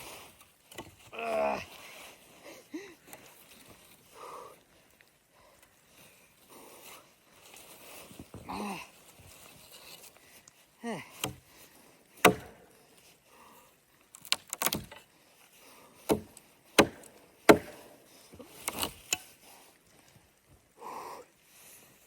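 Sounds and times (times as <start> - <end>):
sharp knocks on wood: 12.2 - 12.5, 16.1 - 17.8.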